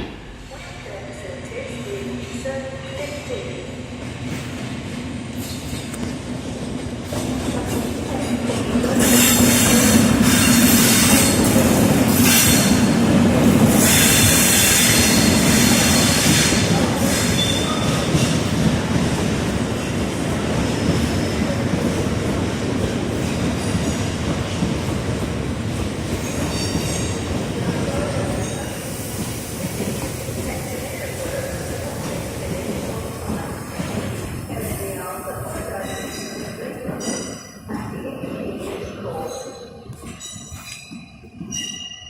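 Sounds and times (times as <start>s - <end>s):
train running over rails: 0.0s - 42.0s
train wheels squealing: 8.9s - 13.0s, 13.7s - 18.5s, 26.2s - 27.2s, 35.4s - 37.5s, 39.2s - 42.0s.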